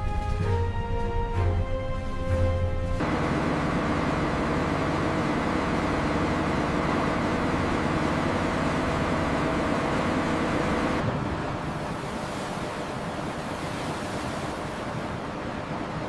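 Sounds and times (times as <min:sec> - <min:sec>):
music: 0:00.0 - 0:03.0
steady rushing noise: 0:01.8 - 0:16.0.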